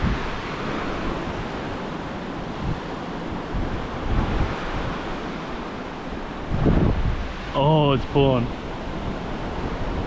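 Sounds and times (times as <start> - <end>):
surf breaking on a beach: 0.0 - 10.0
wind buffeting the microphone: 0.0 - 10.0.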